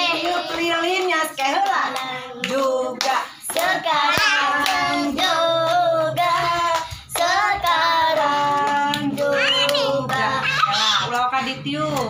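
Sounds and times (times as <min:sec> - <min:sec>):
children singing: 0:00.0 - 0:00.8, 0:01.4 - 0:11.2
hands clapping: 0:00.1 - 0:05.8.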